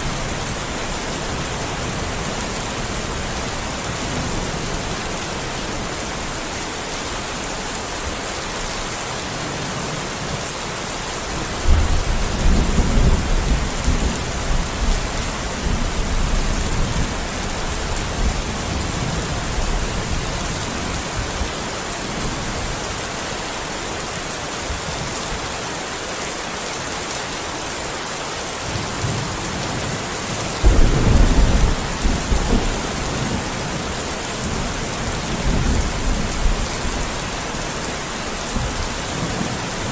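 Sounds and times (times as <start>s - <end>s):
steady rain: 0.0s - 39.9s
thunder rumbling: 30.6s - 37.7s.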